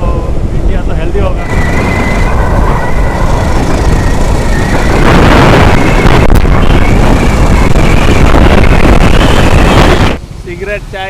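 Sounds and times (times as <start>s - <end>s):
road noise: 0.0s - 11.0s
wind buffeting on microphone: 0.0s - 11.0s
motorcycle engine: 1.3s - 10.2s.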